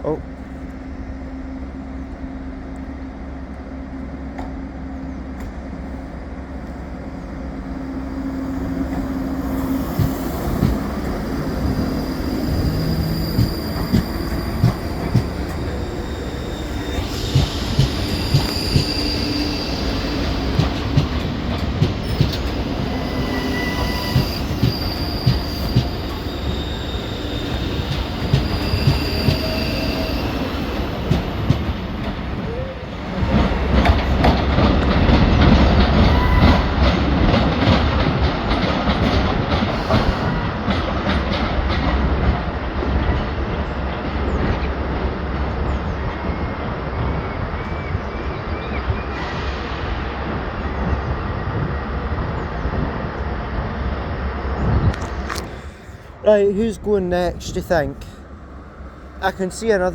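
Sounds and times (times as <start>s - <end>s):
electric train humming: 0.0s - 59.9s
high-pitched wheel squeal: 8.6s - 20.5s, 22.1s - 30.8s, 36.0s - 36.9s
train wheels clicking over rail joints: 8.7s - 44.7s.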